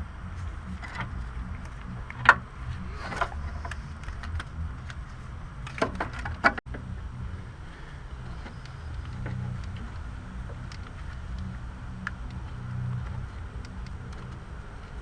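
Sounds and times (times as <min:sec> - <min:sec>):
steady low hum: 0:00.0 - 0:15.0
parts clicking and knocking: 0:00.2 - 0:06.9.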